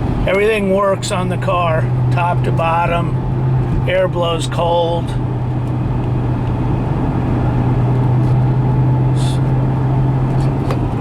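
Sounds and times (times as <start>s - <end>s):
car engine drone from inside: 0.0s - 11.0s
road noise: 0.0s - 11.0s.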